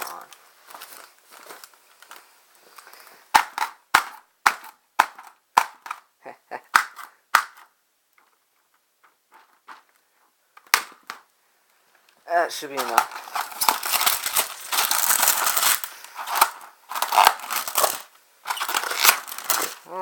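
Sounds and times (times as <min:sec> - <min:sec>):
sharp hits on packaging: 0:03.3 - 0:06.0.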